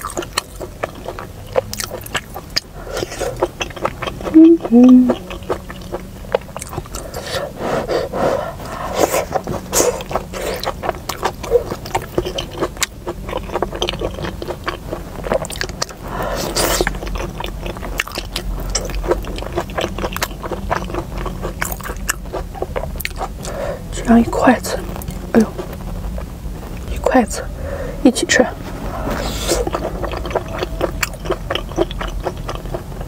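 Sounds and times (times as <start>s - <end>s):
wet chewing with mouth clicks: 0.0s - 27.6s, 28.7s - 33.0s
breathy hiss: 6.9s - 10.6s, 23.4s - 23.9s, 27.4s - 28.1s.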